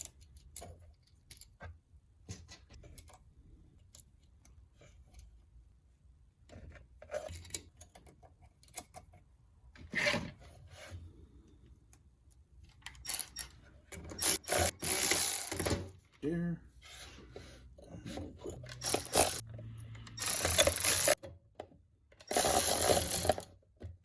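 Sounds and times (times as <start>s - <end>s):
metal parts clicking and rubbing: 12.7s - 15.7s, 18.5s - 19.4s, 20.1s - 21.2s, 22.2s - 23.5s.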